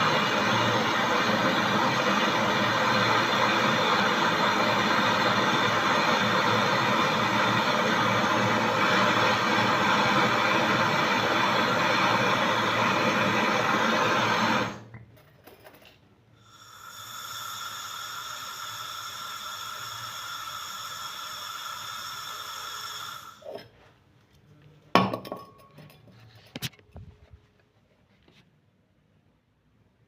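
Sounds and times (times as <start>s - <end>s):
pressurised gas hissing: 0.0s - 14.9s, 16.4s - 23.8s.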